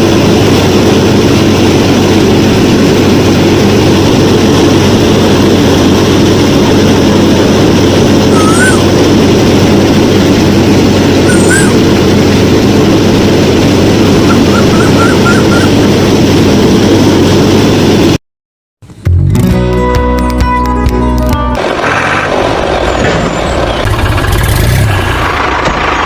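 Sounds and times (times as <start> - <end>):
motor running in a steady drone: 0.0 - 18.2
short rising chirps: 8.3 - 8.9, 11.2 - 11.8, 14.2 - 15.8.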